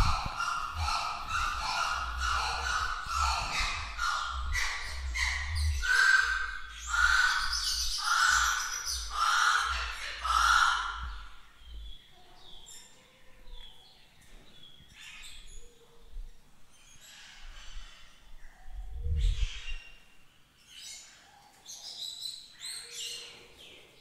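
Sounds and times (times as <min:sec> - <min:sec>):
bird calling loudly: 0:00.0 - 0:11.6.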